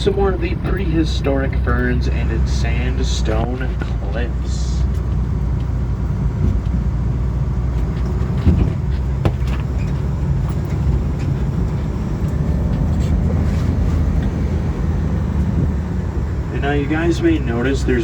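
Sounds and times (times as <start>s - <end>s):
boat vehicle engine rumble: 0.0s - 18.0s.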